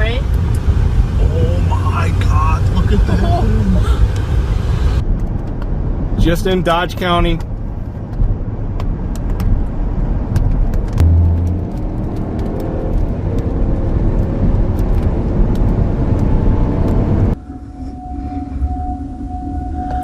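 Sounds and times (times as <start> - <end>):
heavy rumbling wind: 0.0 - 6.7, 7.3 - 20.0
road noise inside vehicle: 0.0 - 20.0
steady single-pitched tone: 17.4 - 20.0.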